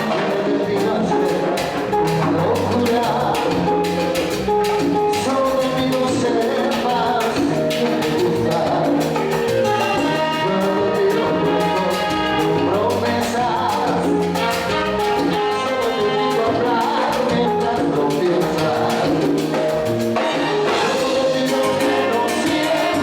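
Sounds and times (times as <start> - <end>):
percussion: 0.0 - 23.0
salsa band playing: 0.0 - 23.0
trumpets: 9.4 - 13.2, 14.3 - 17.0, 20.2 - 23.0.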